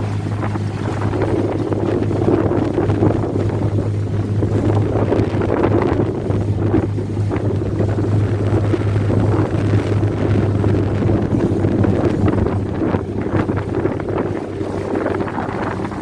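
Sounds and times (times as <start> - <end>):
steady low hum: 0.0 - 16.0
wind buffeting microphone: 0.0 - 16.0.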